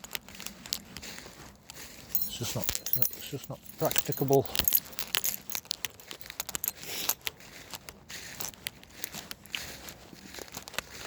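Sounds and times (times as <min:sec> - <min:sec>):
crackling and rustling: 0:02.1 - 0:07.2.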